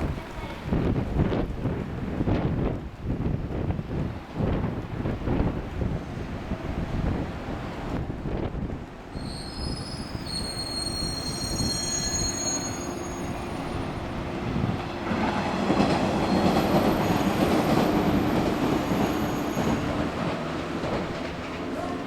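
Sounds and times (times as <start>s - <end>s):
train rolling rumble: 0.0s - 22.0s
train wheels squealing: 9.1s - 14.0s, 16.1s - 20.0s.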